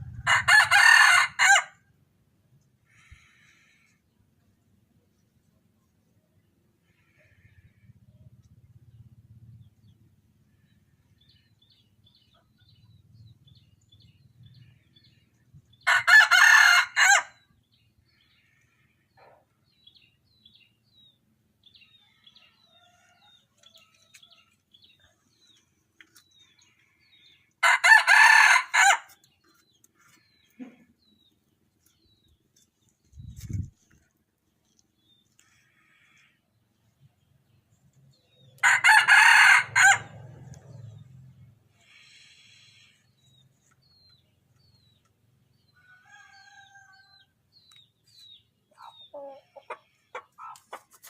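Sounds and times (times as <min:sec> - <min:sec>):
rooster crowing: 0:00.2 - 0:01.8, 0:15.9 - 0:17.3, 0:27.6 - 0:29.1, 0:38.6 - 0:40.4, 0:45.8 - 0:47.3
small birds chirping: 0:41.4 - 0:51.0.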